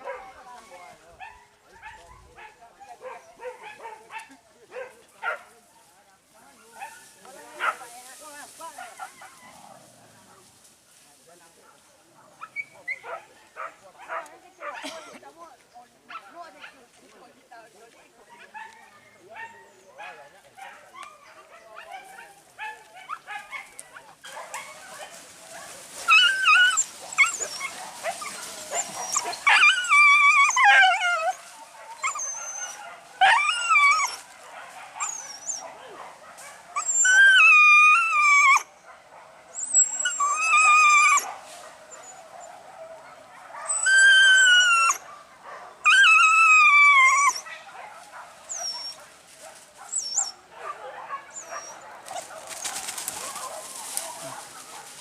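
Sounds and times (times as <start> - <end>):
dogs yelping: 20.7 - 55.0.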